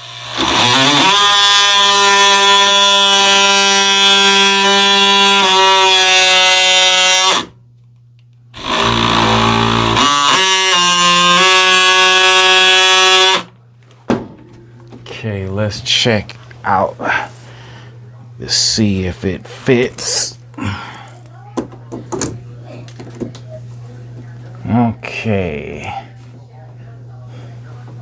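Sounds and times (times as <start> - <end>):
oscillating multi-tool whine: 0.0 - 7.6, 8.6 - 13.6.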